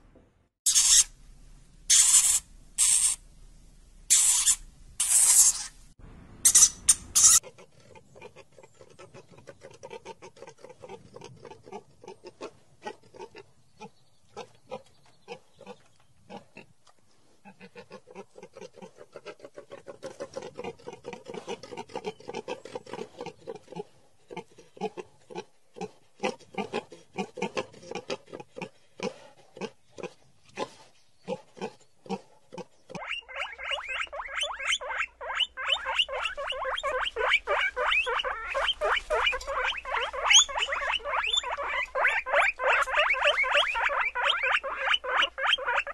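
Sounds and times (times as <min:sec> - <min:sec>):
higher-pitched animal sound: 0:00.7 - 0:01.1, 0:04.1 - 0:05.8, 0:06.4 - 0:07.4, 0:33.0 - 0:45.9.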